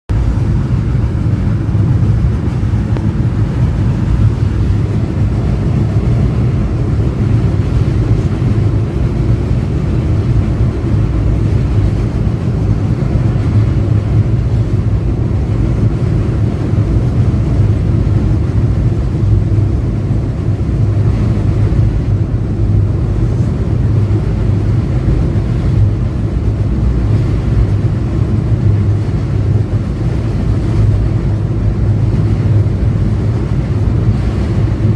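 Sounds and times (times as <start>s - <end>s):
train rumbling: 0.1s - 34.9s.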